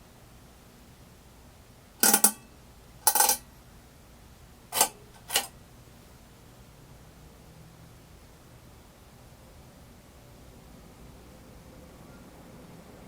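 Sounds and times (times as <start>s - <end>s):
metallic rattling clinks: 2.0s - 2.4s, 3.1s - 3.4s, 4.8s - 5.5s.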